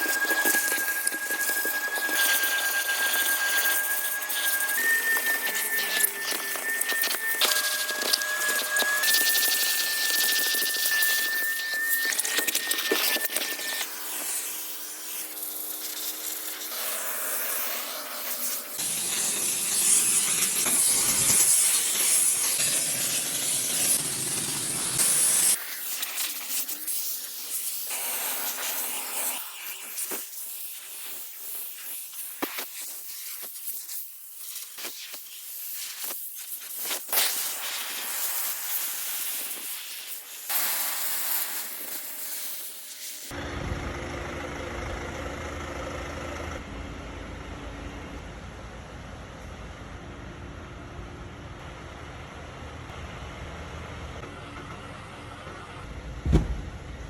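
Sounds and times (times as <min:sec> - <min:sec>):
high hiss of spray jet: 0:00.0 - 0:43.3.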